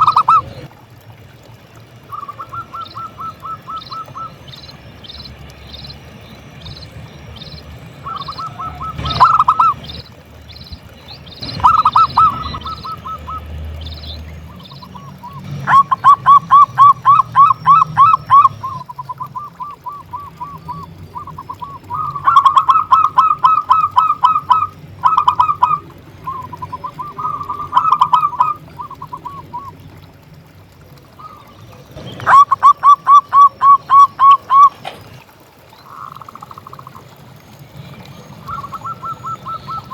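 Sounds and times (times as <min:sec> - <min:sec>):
dove cooing: 0:00.0 - 0:00.7, 0:02.1 - 0:04.7, 0:08.0 - 0:10.1, 0:11.4 - 0:13.5, 0:14.5 - 0:29.9, 0:31.1 - 0:37.1, 0:38.4 - 0:39.9.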